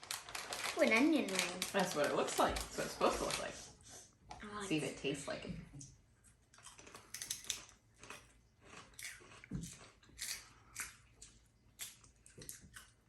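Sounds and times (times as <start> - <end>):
person chewing crunchy snacks: 6.5 - 13.0.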